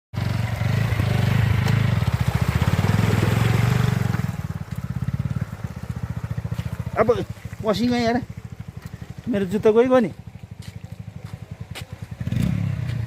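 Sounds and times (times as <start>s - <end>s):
motorcycle engine running: 0.2s - 13.0s.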